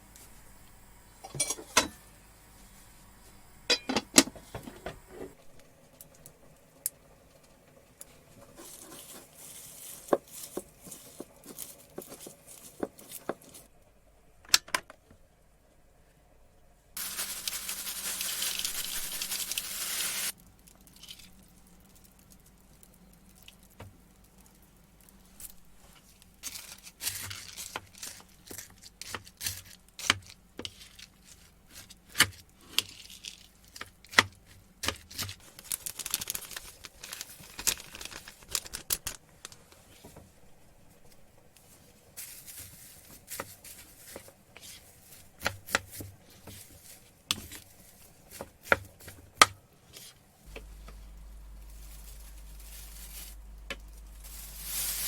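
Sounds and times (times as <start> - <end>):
wrapping material tearing: 17.0 - 23.7, 35.1 - 39.2, 50.5 - 55.0
wrap crinkling and clicking: 17.0 - 31.4, 32.2 - 40.0, 45.1 - 55.0.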